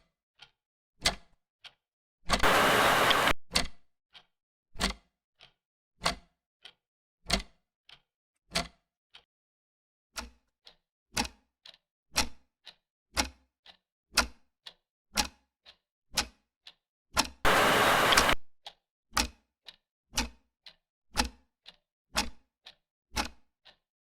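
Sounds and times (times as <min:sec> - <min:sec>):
clock ticking: 0:02.3 - 0:03.7, 0:10.2 - 0:23.8.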